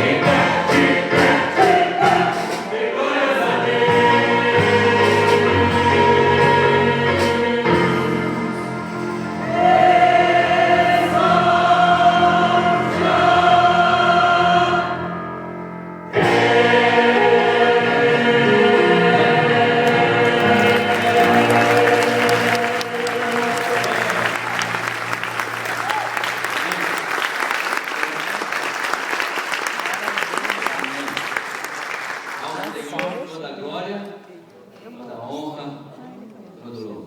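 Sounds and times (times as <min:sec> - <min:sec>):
church choir singing: 0:00.0 - 0:25.7
keyboard accompaniment: 0:00.0 - 0:26.9.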